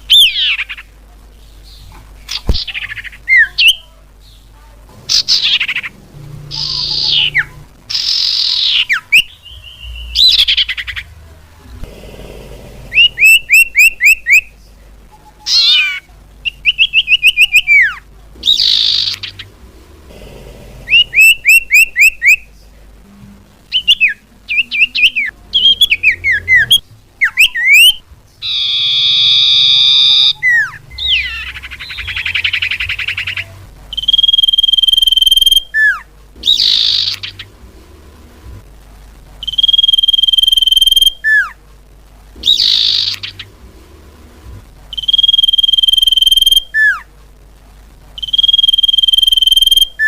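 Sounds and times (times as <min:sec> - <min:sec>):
harsh buzzy bird call: 0:05.1 - 0:11.2, 0:12.8 - 0:14.6, 0:15.4 - 0:22.5, 0:23.7 - 0:37.6, 0:42.4 - 0:43.6, 0:44.9 - 0:47.1, 0:48.2 - 0:50.0
bird whistled calls: 0:06.5 - 0:10.9, 0:13.0 - 0:14.5, 0:15.5 - 0:19.5, 0:20.9 - 0:22.4, 0:23.7 - 0:37.5, 0:39.4 - 0:41.5, 0:42.4 - 0:43.5, 0:44.9 - 0:47.0, 0:48.2 - 0:50.0.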